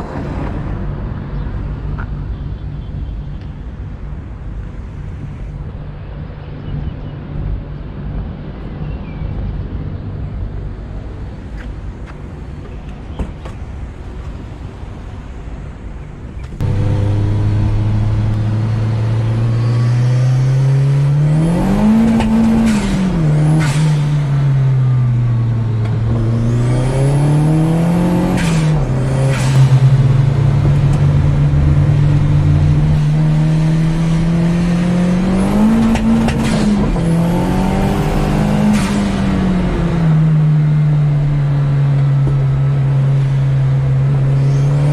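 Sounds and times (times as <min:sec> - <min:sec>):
car engine revving: 0:16.6 - 0:44.9.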